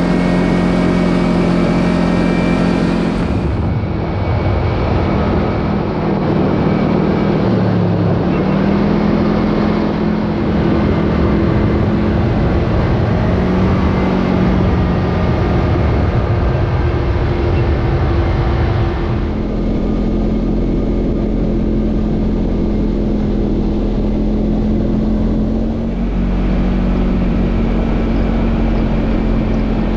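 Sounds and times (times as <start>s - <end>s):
road and tyre noise: 0.0s - 29.9s
utility vehicle engine running: 0.0s - 29.9s.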